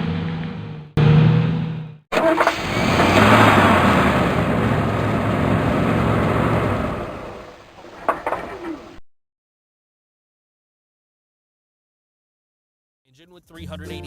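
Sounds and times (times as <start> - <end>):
large vehicle engine running: 0.0 - 8.9
rushing noise: 2.2 - 9.0
sharp knocks: 7.8 - 9.0.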